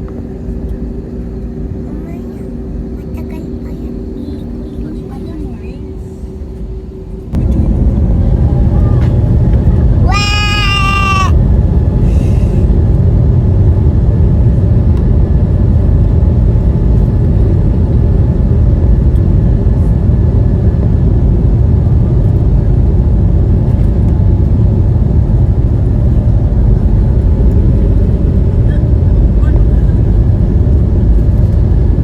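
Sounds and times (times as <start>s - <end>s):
airliner cabin rumble: 0.0s - 32.0s.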